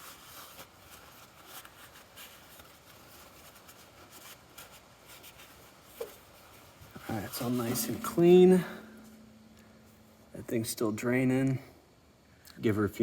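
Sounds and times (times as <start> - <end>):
paper towels rustling and rubbing: 0.0 - 7.9.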